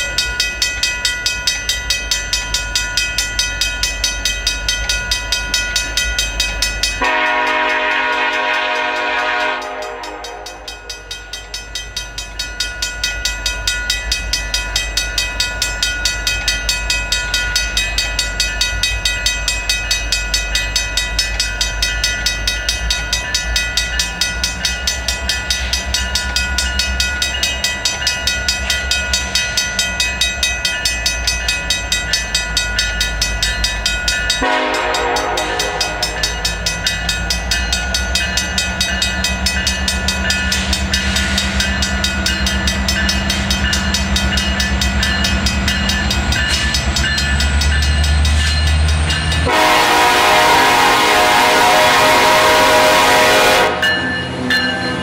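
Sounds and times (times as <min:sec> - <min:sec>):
crossing bell ringing: 0:00.0 - 0:55.0
train rumble: 0:00.0 - 0:55.0
train horn blast: 0:07.0 - 0:10.9, 0:34.4 - 0:36.4, 0:49.4 - 0:54.1.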